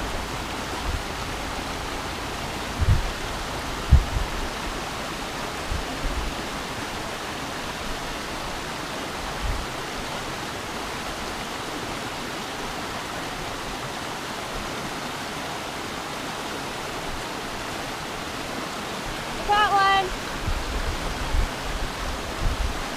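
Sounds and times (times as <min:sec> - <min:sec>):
low bumps: 0:00.0 - 0:04.6
stream water rushing: 0:00.0 - 0:22.9.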